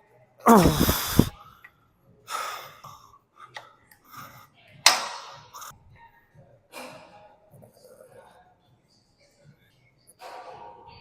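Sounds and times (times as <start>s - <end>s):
person exhaling hard: 0.5s - 1.3s.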